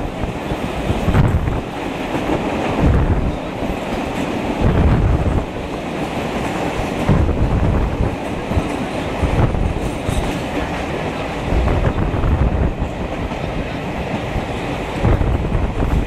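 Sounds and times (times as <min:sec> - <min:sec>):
train wheels on rails: 0:00.0 - 0:16.0
clacks over rail joints: 0:00.4 - 0:12.0.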